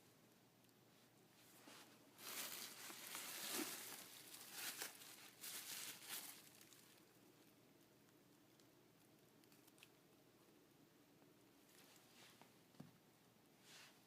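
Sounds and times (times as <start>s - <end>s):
packaging crinkling: 2.2s - 7.1s.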